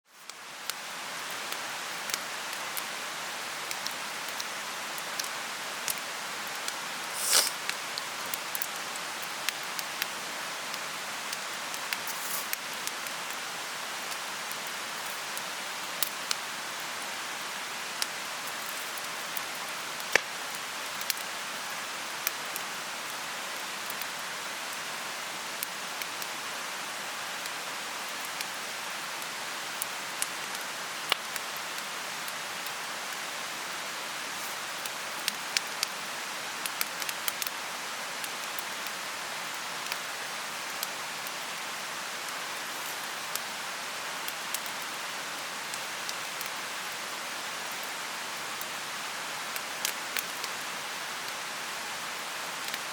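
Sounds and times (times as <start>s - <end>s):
mountain stream rushing: 0.9s - 23.9s
bonfire pops and crackles: 5.9s - 8.7s.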